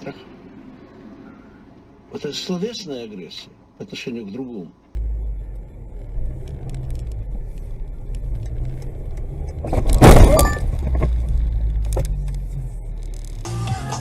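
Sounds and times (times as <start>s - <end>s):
vehicle driving: 4.8s - 13.6s
crash impact with breaking: 9.7s - 10.7s.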